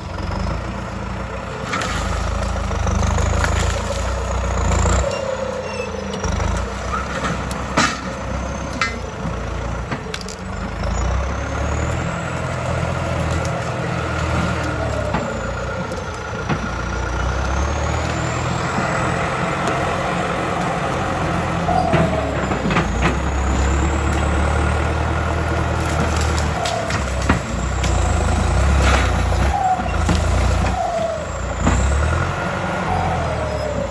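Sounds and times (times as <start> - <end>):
tractor diesel engine droning: 0.0 - 33.9.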